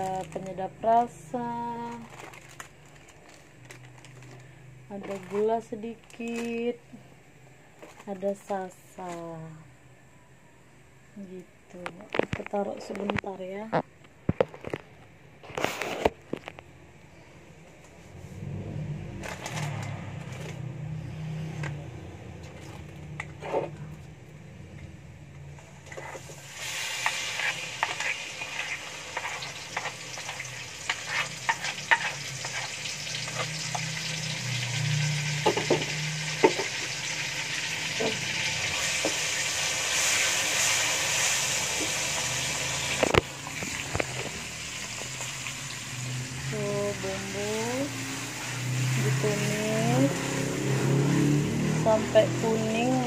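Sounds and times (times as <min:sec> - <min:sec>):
spatula scraping a pan: 0:23.2 - 0:23.8, 0:25.9 - 0:34.0
paste sizzling in hot oil: 0:26.1 - 0:46.5.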